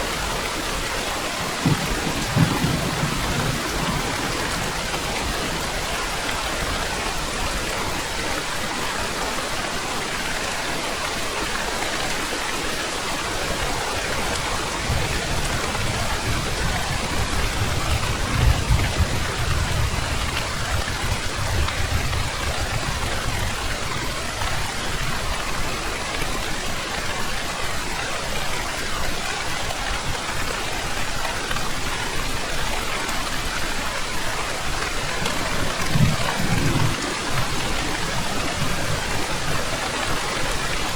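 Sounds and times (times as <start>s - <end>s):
heavy rain falling: 0.0s - 40.9s
thunder rumbling: 1.3s - 7.3s, 34.7s - 40.9s.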